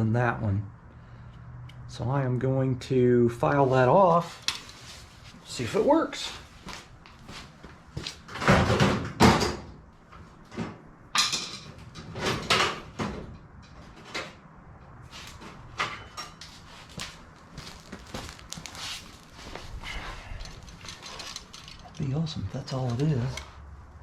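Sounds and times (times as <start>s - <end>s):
metal part knocked and handled: 11.2s - 12.8s.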